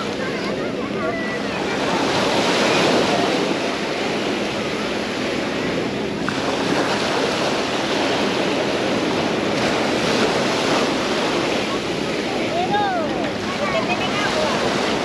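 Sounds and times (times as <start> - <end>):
sea waves washing onto beach: 0.0 - 15.0.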